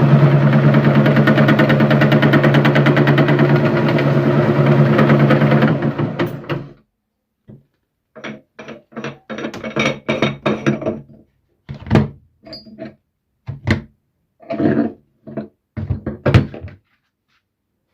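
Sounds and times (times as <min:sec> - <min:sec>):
electric meat grinder motor: 0:00.0 - 0:06.7.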